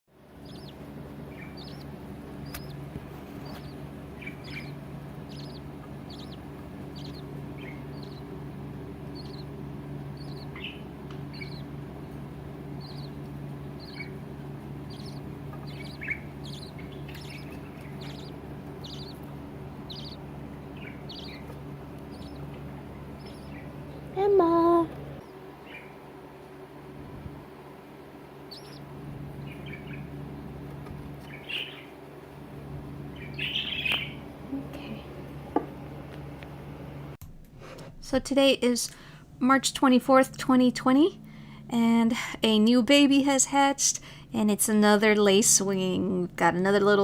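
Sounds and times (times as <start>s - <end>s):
steady low hum: 0.1s - 47.0s
budgerigar chirps: 0.4s - 2.8s, 3.4s - 8.4s, 9.1s - 11.7s, 12.8s - 13.2s, 13.8s - 14.2s, 14.8s - 23.8s, 25.6s - 26.0s, 28.5s - 30.2s, 31.2s - 31.9s, 33.2s - 34.2s.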